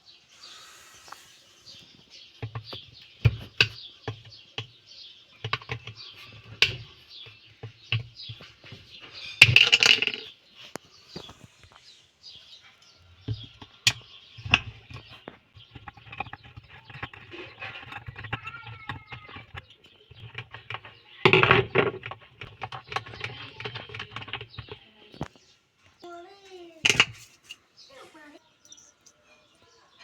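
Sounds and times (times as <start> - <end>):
clicks and knocks of hand work: 1.8 - 11.8, 13.2 - 25.4.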